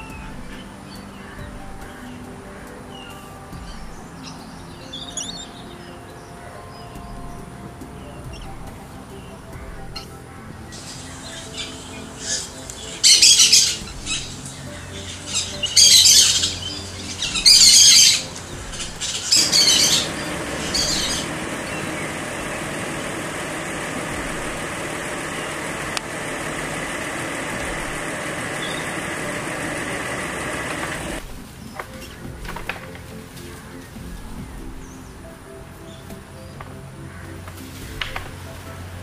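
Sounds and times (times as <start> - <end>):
harsh high bird calls: 0.0 - 32.7
steady rushing noise: 0.0 - 39.0.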